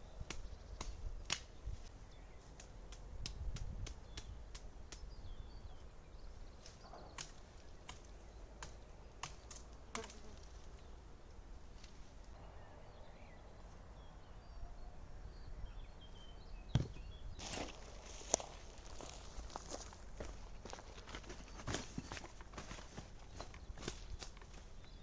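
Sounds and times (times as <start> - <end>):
faint bird chirps: 12.3 - 20.0.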